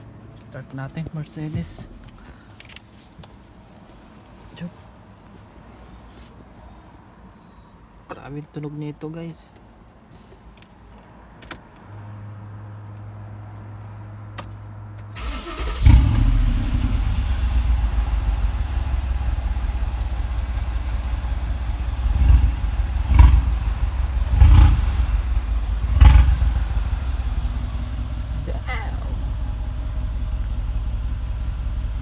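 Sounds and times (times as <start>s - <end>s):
car engine starting and idling: 0.0s - 4.3s, 14.4s - 32.0s
engine revs: 15.2s - 32.0s
low hum: 16.0s - 32.0s.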